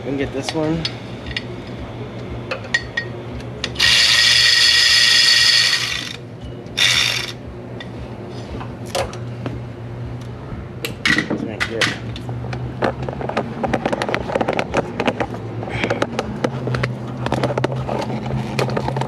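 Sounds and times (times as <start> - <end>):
power ratchet wrench buzzing: 3.6 - 6.2, 6.8 - 7.4.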